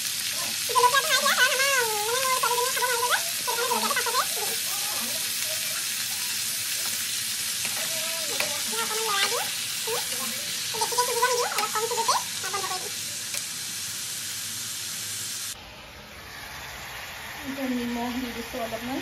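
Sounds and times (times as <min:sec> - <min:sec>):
vegetables sizzling in hot oil: 0:00.0 - 0:19.0.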